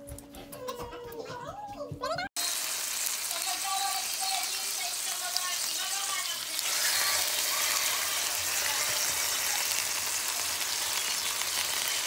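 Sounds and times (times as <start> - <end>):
meat and onion sizzling in pan: 2.4 - 12.0.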